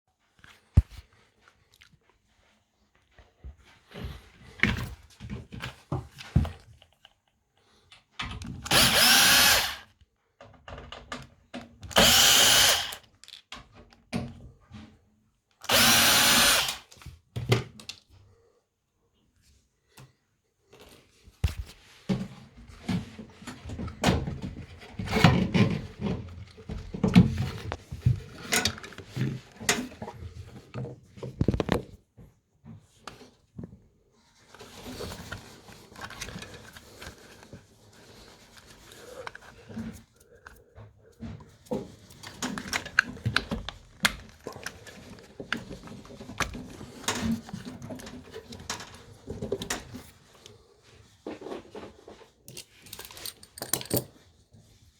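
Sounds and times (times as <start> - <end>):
handling noise knocks and clicks: 52.5 - 54.3.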